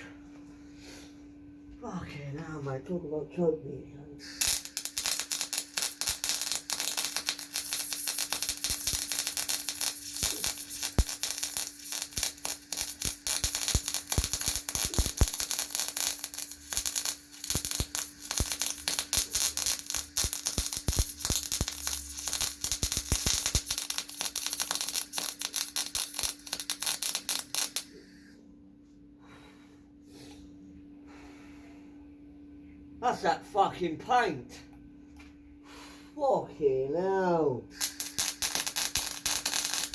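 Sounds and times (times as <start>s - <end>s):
arc welder crackling: 4.2s - 28.0s, 37.7s - 39.9s.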